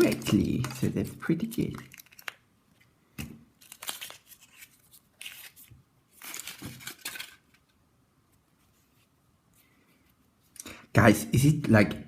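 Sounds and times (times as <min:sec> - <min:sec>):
foil wrapper crinkling and tearing: 0:00.0 - 0:02.4, 0:03.6 - 0:07.4.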